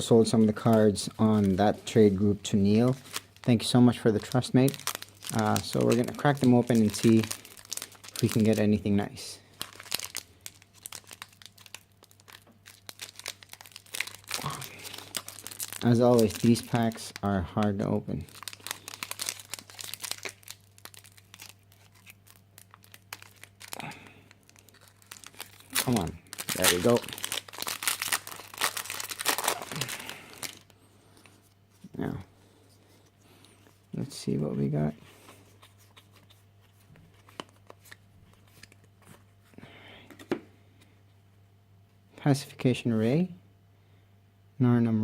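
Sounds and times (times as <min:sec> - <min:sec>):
cards rustling: 0:00.0 - 0:08.9, 0:09.5 - 0:31.9, 0:32.7 - 0:39.5
foil wrapper crinkling: 0:00.0 - 0:08.9, 0:09.5 - 0:30.7
faint steady hum: 0:00.0 - 0:45.0.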